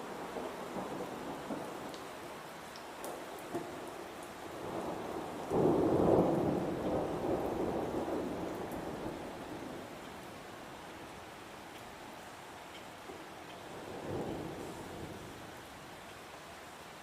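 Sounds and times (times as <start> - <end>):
steady rain: 0.0 - 17.0
thunder rumbling: 4.6 - 9.9.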